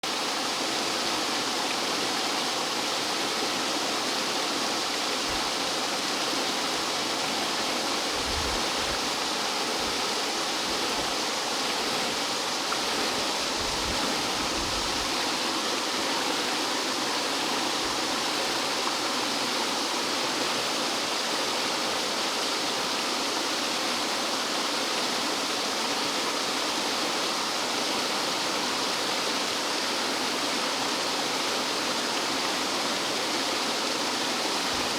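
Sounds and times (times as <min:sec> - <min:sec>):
stream water rushing over rocks: 0:00.0 - 0:34.9.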